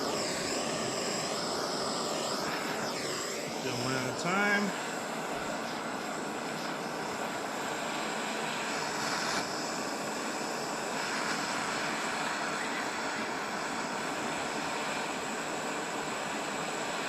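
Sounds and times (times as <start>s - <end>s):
gas torch hissing: 0.0s - 17.0s.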